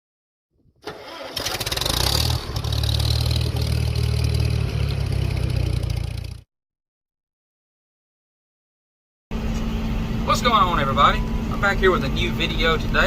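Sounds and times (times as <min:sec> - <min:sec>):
diesel tractor engine droning: 0:00.8 - 0:06.4, 0:09.3 - 0:13.0.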